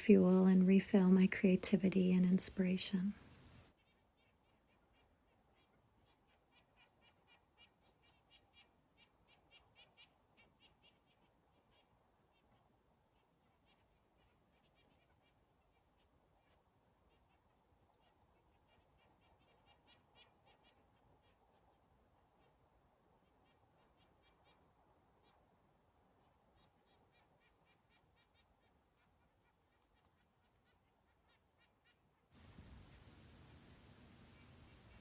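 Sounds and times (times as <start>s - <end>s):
faint steady hiss: 0.0s - 3.8s, 32.4s - 35.0s
faint high bird chirps: 17.0s - 21.8s.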